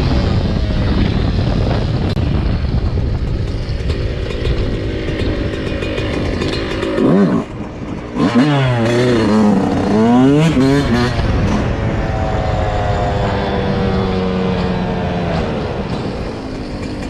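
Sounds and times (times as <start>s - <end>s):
dirt bike engine revving: 3.5s - 17.0s.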